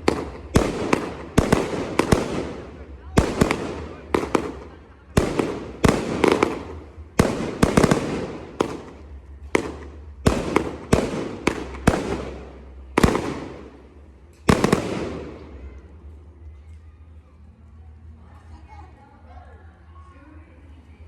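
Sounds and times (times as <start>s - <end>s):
fireworks bangs with crackle: 0.0s - 15.8s.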